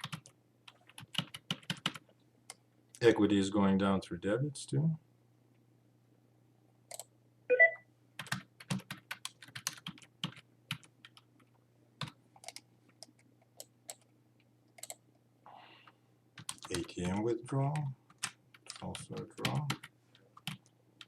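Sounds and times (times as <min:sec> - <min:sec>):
typing on computer keyboard: 0:00.0 - 0:02.0, 0:08.2 - 0:11.3, 0:12.0 - 0:14.1, 0:14.8 - 0:15.0, 0:16.4 - 0:20.7.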